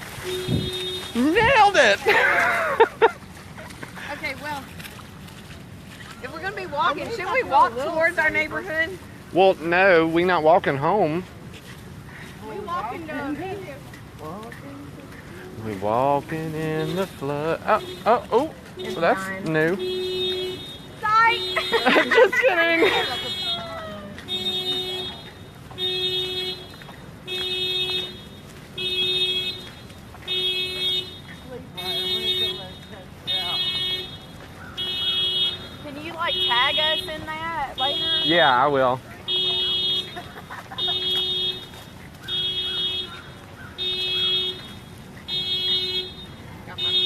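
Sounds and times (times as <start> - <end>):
car horn blasts: 0.0 - 1.9, 16.6 - 47.0.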